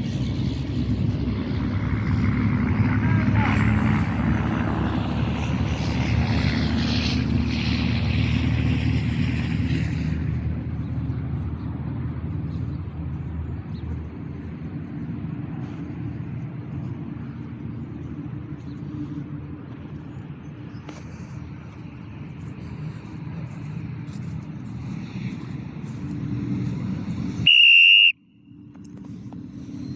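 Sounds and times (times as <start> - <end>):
low engine drone: 0.0 - 29.9.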